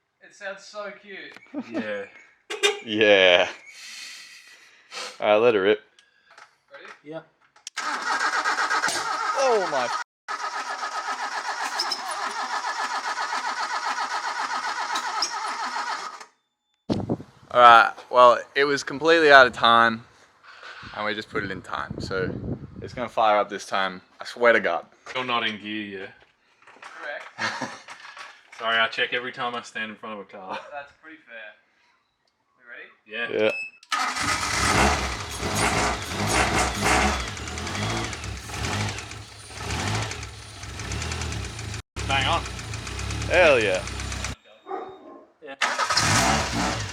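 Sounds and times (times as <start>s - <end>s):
engine cranking on starter motor: 7.7s - 16.3s, 33.9s - 44.4s, 45.6s - 46.9s
car engine running: 34.2s - 44.4s.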